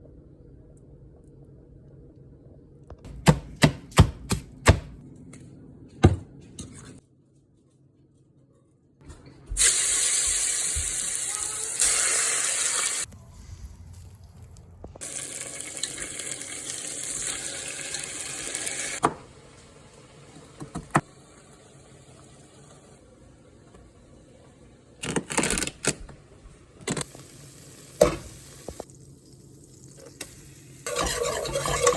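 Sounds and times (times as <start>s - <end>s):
knife chopping on cutting board: 3.1s - 5.0s
water running from tap into sink: 9.6s - 11.3s, 15.0s - 19.0s.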